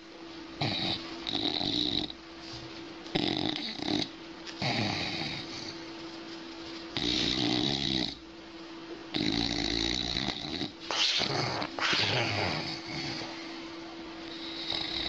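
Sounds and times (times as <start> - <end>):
dog snoring: 0.6 - 2.2, 3.1 - 5.8, 7.0 - 8.2, 9.1 - 13.6, 14.3 - 15.0.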